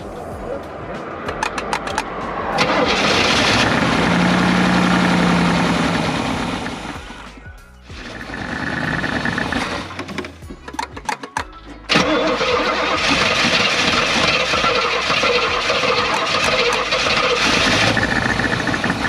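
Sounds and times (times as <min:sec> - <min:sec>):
scattered clicks: 0:01.2 - 0:02.2
car engine cranking and running: 0:01.2 - 0:07.3, 0:07.9 - 0:19.0.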